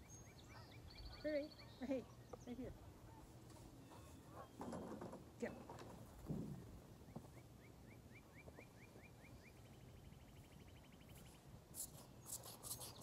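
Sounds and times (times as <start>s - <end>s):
small bird singing trills: 0.0s - 2.7s.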